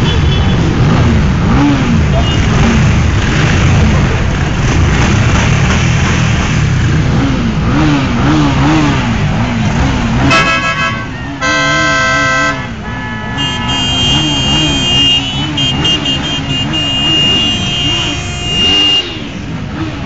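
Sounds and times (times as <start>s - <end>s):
vehicle engine noise: 0.0s - 20.0s
vehicle horns honking: 2.1s - 2.6s, 10.2s - 19.4s.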